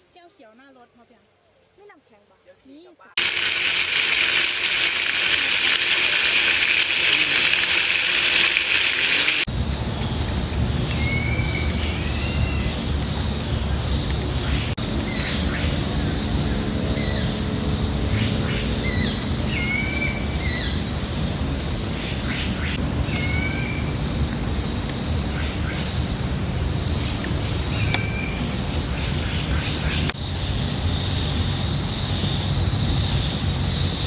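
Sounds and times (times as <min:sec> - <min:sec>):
loud even hiss: 0:03.2 - 0:14.8
high-pitched insect drone: 0:03.2 - 0:34.0
low forest rumble: 0:03.2 - 0:34.0
birds chirping: 0:08.1 - 0:34.0.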